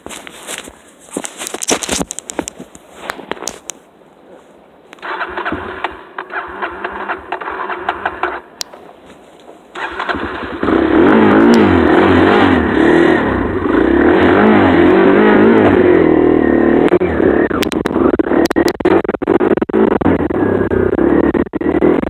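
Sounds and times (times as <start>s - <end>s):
dirt bike engine revving: 5.0s - 8.5s, 9.8s - 22.0s.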